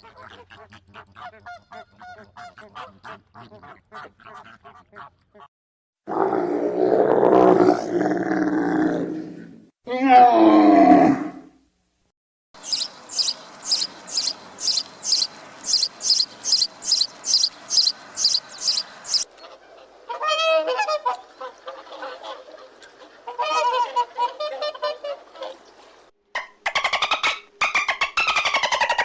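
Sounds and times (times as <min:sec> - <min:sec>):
high-pitched waterfowl calls: 0:00.0 - 0:05.5, 0:12.6 - 0:29.0
lower waterfowl calls: 0:00.0 - 0:05.5, 0:12.6 - 0:26.1.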